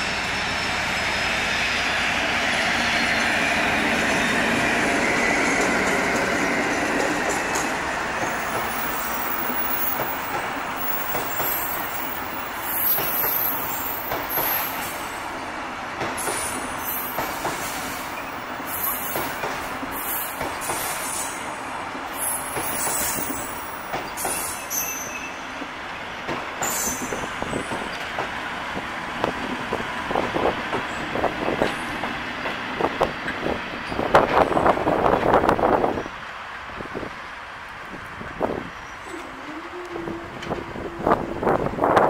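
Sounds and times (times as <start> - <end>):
rumble of wheels on rail: 0.0 - 42.0
high-pitched wheel squeals: 22.2 - 25.4.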